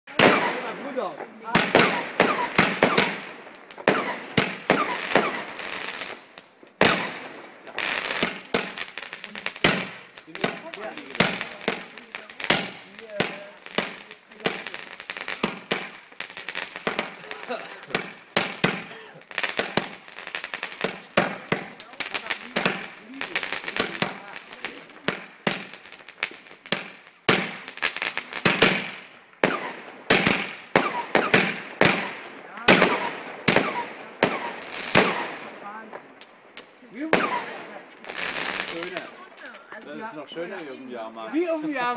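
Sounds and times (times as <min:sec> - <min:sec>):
fireworks bangs: 0:00.1 - 0:41.9
sizzling firework crackle: 0:00.1 - 0:41.9
falling firework whistles: 0:01.8 - 0:14.0.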